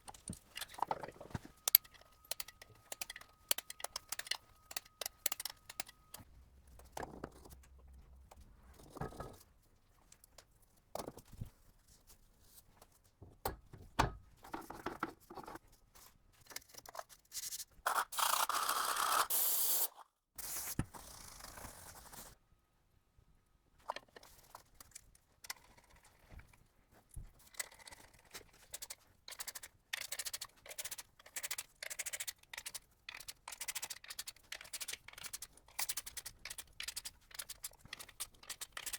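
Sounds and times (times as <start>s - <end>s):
metal parts and tools clicking: 0.0s - 6.3s, 27.5s - 38.9s.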